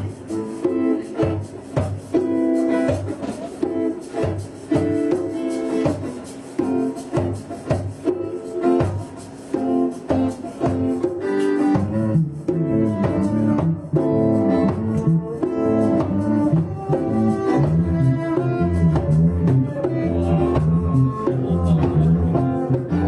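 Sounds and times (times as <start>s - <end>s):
plucked guitar: 0.0s - 23.0s
low bass line: 14.6s - 23.0s.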